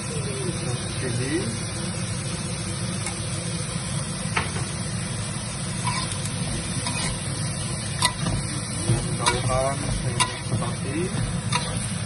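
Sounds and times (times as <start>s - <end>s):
food sizzling in a wok: 0.0s - 12.0s
ladle tapping a wok: 8.0s - 11.9s.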